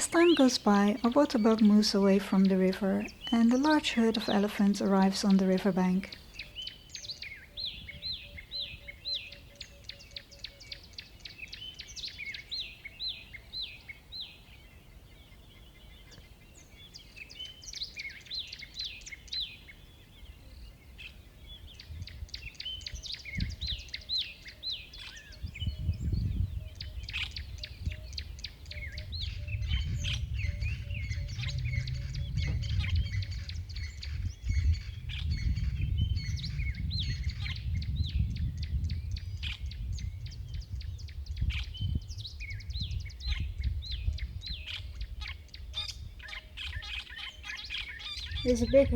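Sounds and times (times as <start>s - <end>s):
birds singing and chirping: 0.0s - 48.9s
low rumbling noise: 28.8s - 43.2s.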